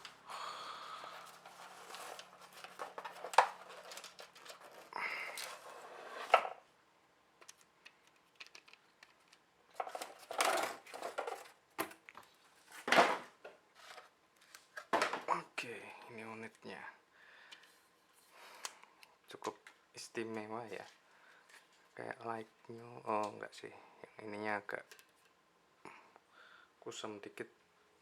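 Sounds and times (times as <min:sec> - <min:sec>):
packaging rustling and scraping: 0:00.8 - 0:06.6, 0:09.1 - 0:15.0.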